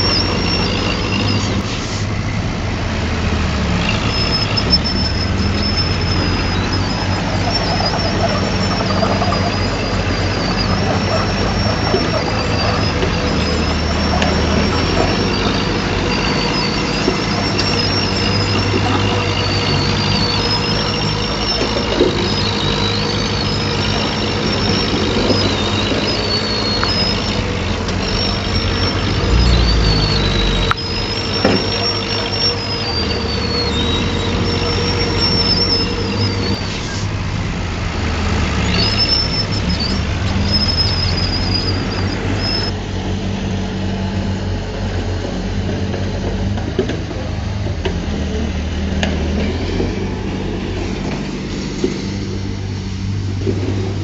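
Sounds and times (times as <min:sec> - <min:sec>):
diesel engine running: 0:00.0 - 0:54.0
high-pitched wavering whine: 0:03.8 - 0:37.1.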